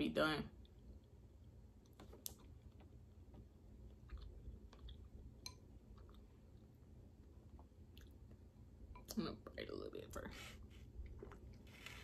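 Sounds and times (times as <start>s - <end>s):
faint chewing: 3.8s - 6.7s.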